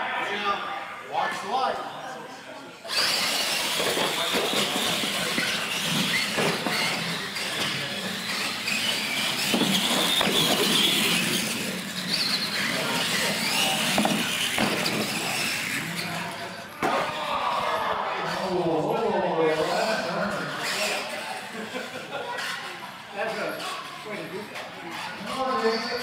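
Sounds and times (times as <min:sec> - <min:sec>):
toy truck electric motor whine: 0:02.9 - 0:16.6, 0:19.6 - 0:26.0.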